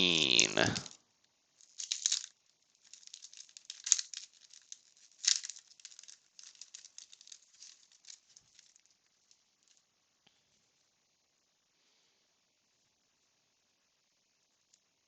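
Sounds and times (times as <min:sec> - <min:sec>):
cards rustling and flicking: 0:00.1 - 0:01.0, 0:01.6 - 0:09.0
paper crinkling: 0:00.4 - 0:01.0, 0:01.6 - 0:09.8.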